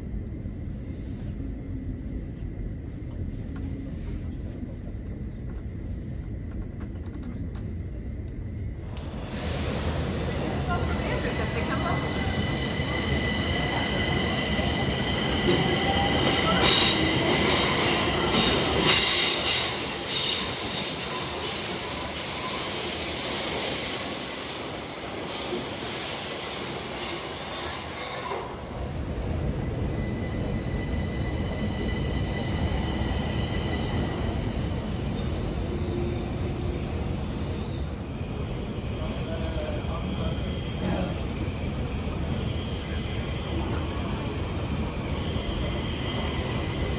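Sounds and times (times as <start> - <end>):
train rumbling: 0.0 - 46.9
train wheels squealing: 9.3 - 36.7.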